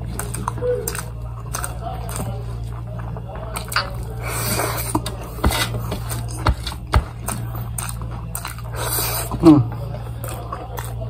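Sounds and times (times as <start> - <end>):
person chewing food: 0.0 - 11.0
steady low hum: 0.0 - 11.0
nasal breathing: 4.1 - 5.8.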